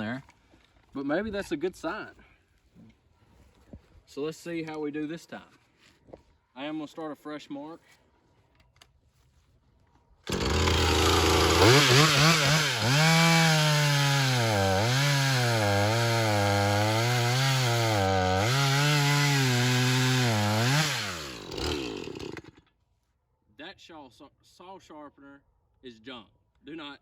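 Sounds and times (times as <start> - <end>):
chainsaw running: 10.3 - 22.6.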